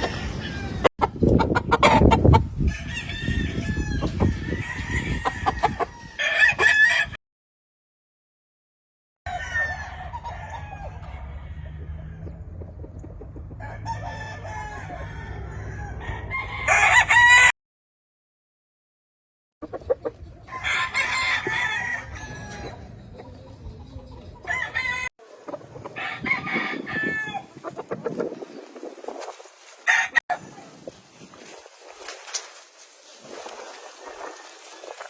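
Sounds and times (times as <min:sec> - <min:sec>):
roosters crowing: 0:00.0 - 0:00.9, 0:01.6 - 0:07.2, 0:09.3 - 0:12.7, 0:13.4 - 0:17.5, 0:20.4 - 0:28.2, 0:29.6 - 0:30.7, 0:33.4 - 0:35.0.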